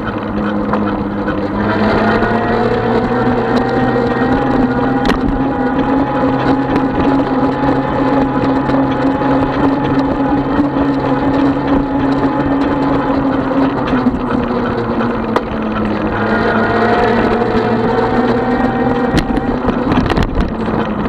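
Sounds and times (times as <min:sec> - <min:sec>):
electric bike motor whining: 0:00.0 - 0:21.0
faint clicks and rattles: 0:00.0 - 0:21.0
tyres rumbling on road: 0:00.0 - 0:21.0.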